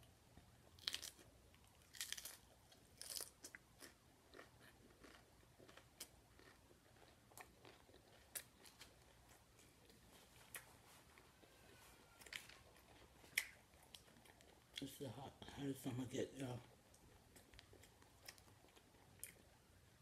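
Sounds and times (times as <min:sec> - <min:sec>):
crunching bites of taco shell: 0:00.7 - 0:09.2.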